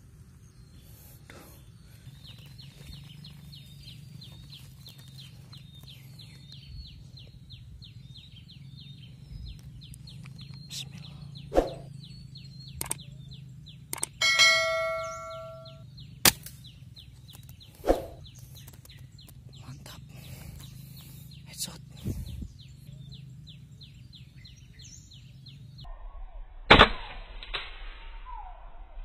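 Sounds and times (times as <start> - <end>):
fast high repeating chirp: 14.0 - 15.8
metallic ringing: 14.2 - 15.8
air rifle shots: 26.7 - 28.0.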